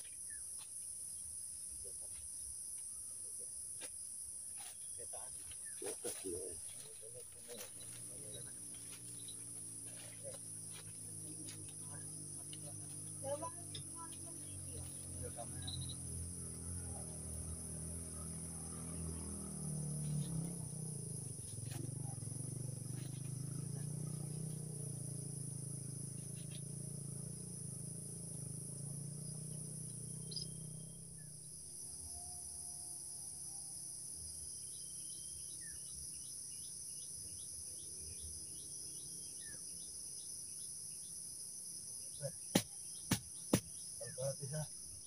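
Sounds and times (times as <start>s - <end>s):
crickets chirping: 0.0s - 45.0s
insect chorus buzzing: 0.0s - 45.0s
sharp knocks: 42.5s - 43.8s.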